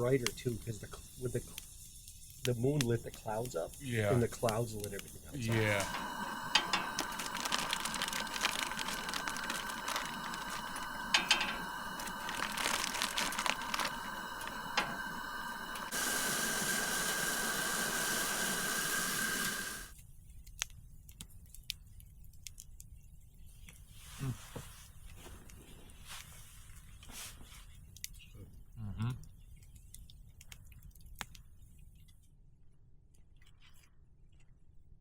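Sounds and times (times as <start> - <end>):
campfire crackling and popping: 0.0 - 19.9.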